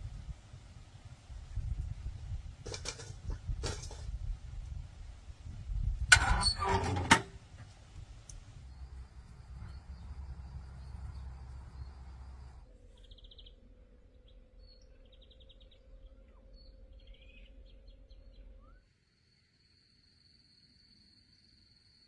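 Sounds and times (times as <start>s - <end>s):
small birds chirping and trilling: 8.6s - 18.8s.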